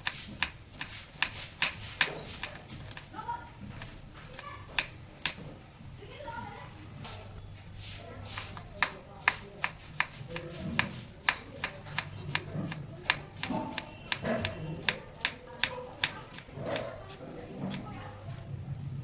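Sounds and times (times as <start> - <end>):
knife chopping on cutting board: 0.0 - 3.1, 3.7 - 5.5, 8.2 - 18.4.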